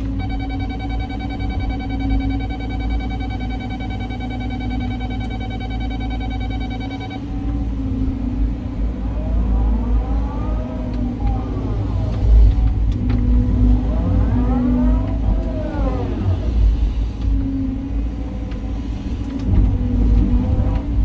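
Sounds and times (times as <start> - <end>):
pulsing high tone: 0.0 - 16.8
excavator diesel engine rumbling: 0.0 - 21.0
hydraulic whine: 0.0 - 21.0.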